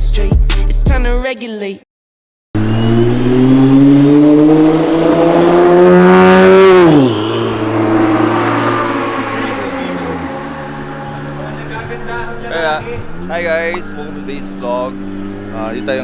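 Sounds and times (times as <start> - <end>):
car engine accelerating: 2.6 - 16.0.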